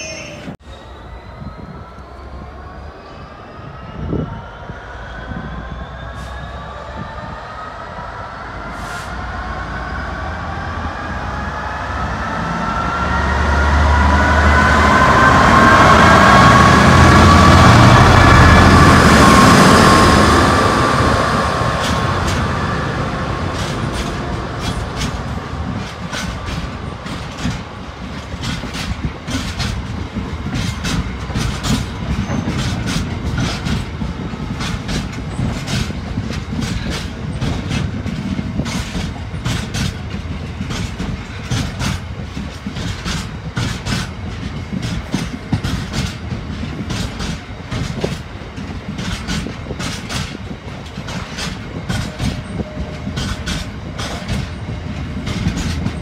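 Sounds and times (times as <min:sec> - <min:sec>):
diesel locomotive engine: 0:00.0 - 0:56.0
freight train rumbling past: 0:00.0 - 0:56.0
wheels clicking over rail joints: 0:23.6 - 0:56.0.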